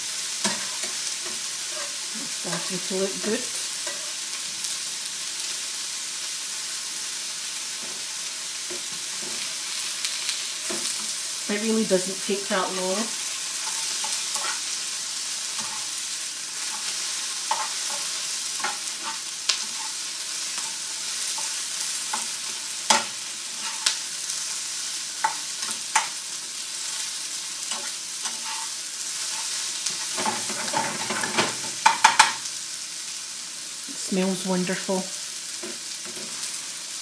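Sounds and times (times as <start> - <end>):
sausages and onion sizzling: 0.0 - 37.0
spatula scraping and tapping pan: 3.8 - 4.1, 13.6 - 14.6, 15.6 - 15.9, 16.6 - 24.0, 25.2 - 26.2, 27.7 - 32.4.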